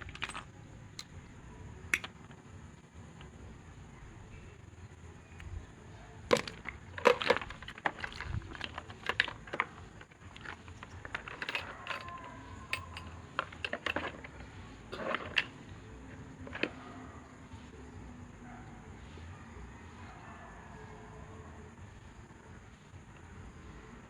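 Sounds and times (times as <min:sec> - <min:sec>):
small parts and wires clicking: 0:00.0 - 0:02.5, 0:06.2 - 0:17.0.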